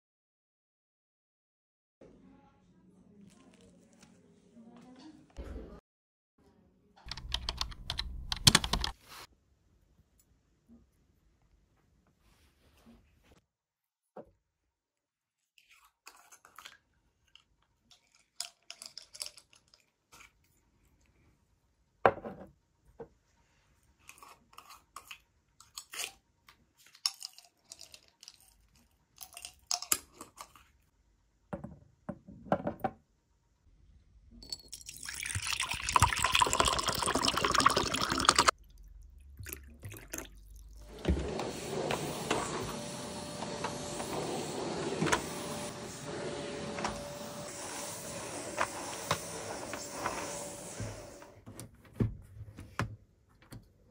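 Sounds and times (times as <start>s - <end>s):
running water: 34.9s - 41.9s.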